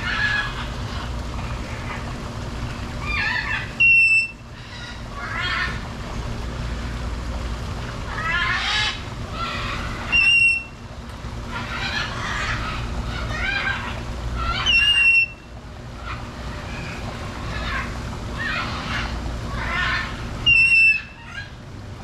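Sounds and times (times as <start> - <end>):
birds squawking and calling: 0.0 - 7.0, 8.0 - 21.6
steady low hum: 0.0 - 22.0
loud clear whistles: 3.8 - 4.4, 10.1 - 10.7, 14.7 - 15.4, 20.5 - 21.1.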